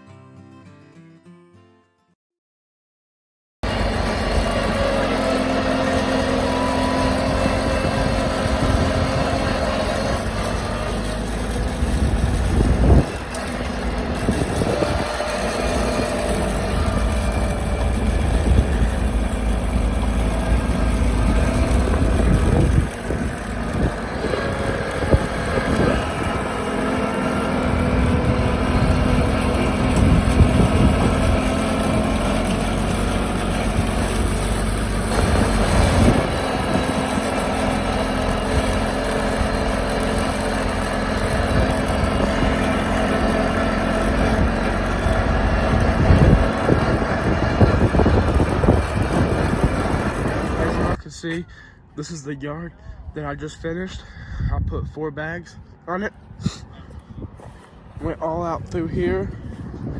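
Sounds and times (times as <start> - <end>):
tractor diesel engine running: 3.6 - 52.0, 55.6 - 59.9.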